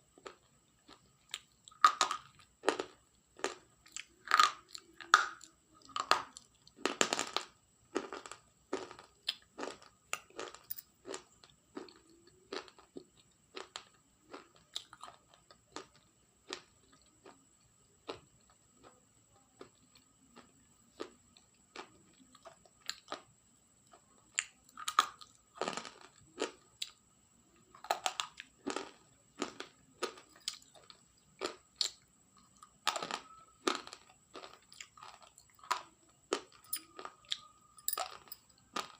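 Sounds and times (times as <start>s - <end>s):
crunchy food being chewed: 0.0s - 38.9s
faint high whine: 8.5s - 38.9s.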